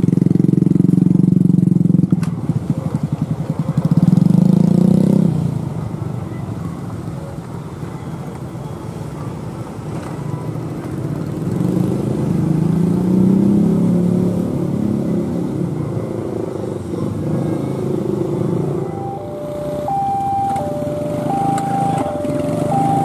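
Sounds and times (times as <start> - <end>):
two-tone level crossing alarm: 18.8 - 23.0.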